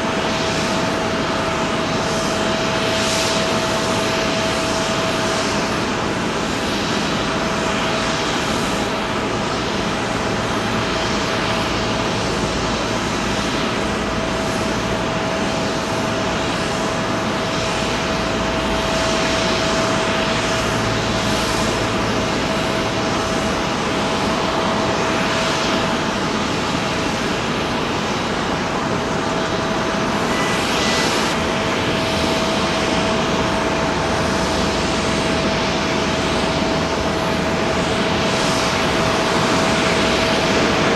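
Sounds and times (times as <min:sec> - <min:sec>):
jet engines roaring: 0:00.0 - 0:40.9.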